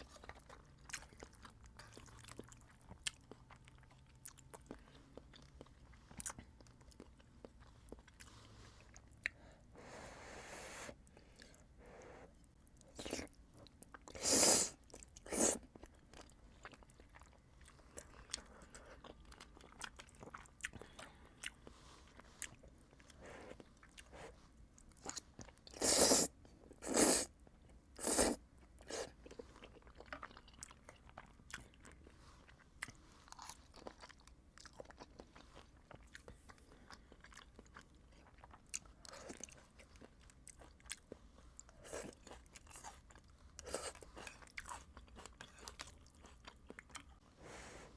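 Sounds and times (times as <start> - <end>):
chewing with wet mouth clicks: 0.0 - 8.3, 14.8 - 24.1, 28.6 - 47.2.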